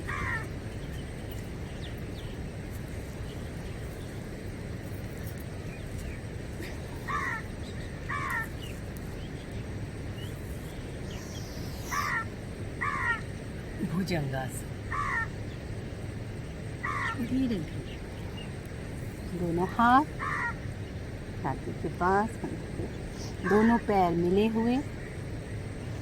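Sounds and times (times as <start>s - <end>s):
crow cawing: 0.0s - 0.5s, 7.0s - 8.6s, 11.8s - 13.4s, 14.8s - 15.4s, 16.8s - 17.3s, 20.1s - 20.7s, 23.3s - 23.8s
low background noise: 0.0s - 26.0s.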